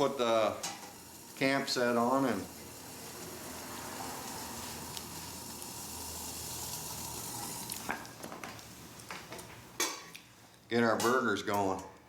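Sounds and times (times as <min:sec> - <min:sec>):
pellet stove hissing: 0:00.0 - 0:09.8
water boiling in a pot: 0:00.0 - 0:10.1.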